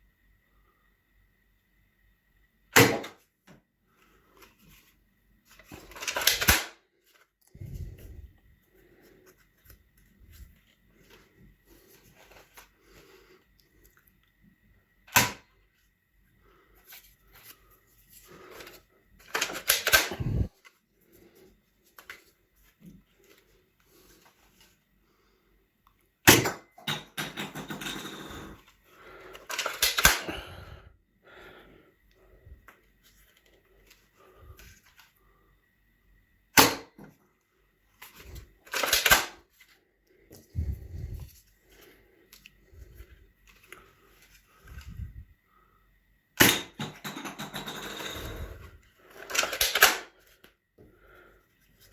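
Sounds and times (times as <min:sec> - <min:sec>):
toy gun firing snaps: 0:06.1 - 0:06.8, 0:19.4 - 0:20.5, 0:29.6 - 0:30.3, 0:38.7 - 0:39.4, 0:49.3 - 0:50.1
plastic clicking and rattling: 0:29.3 - 0:30.3, 0:49.1 - 0:50.1.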